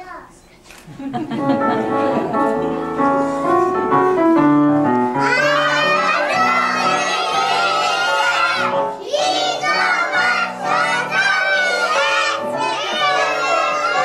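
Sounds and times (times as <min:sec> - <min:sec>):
musical accompaniment: 0:01.2 - 0:14.0
children singing together: 0:05.2 - 0:14.0.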